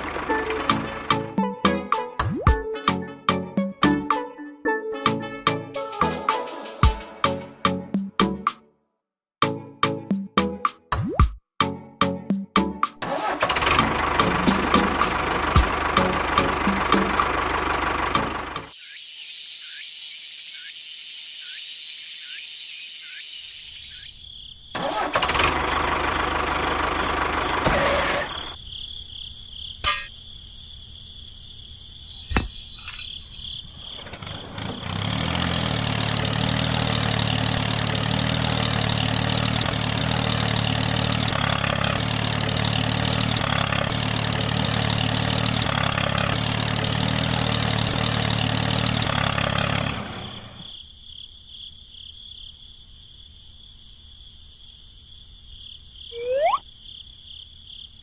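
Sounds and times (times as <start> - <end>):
small engine running: 0.0 - 1.3, 13.0 - 18.7, 24.8 - 28.6, 34.0 - 50.6
insect buzz: 18.7 - 24.8, 28.4 - 34.1, 50.6 - 58.0.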